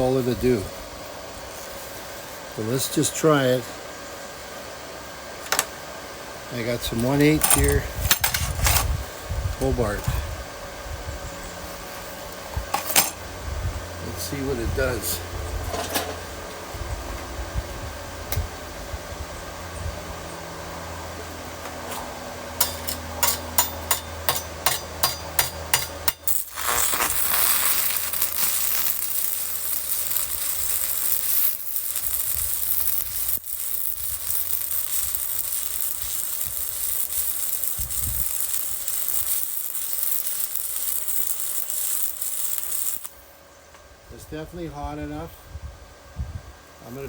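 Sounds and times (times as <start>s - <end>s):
welding arc sizzling: 6.5s - 10.1s, 22.6s - 43.4s
welding rod tapping: 22.6s - 43.1s.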